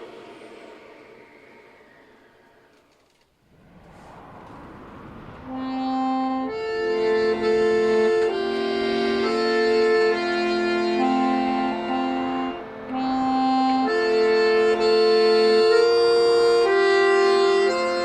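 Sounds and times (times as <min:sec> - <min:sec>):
accordion playing a melody: 0:05.9 - 0:18.0.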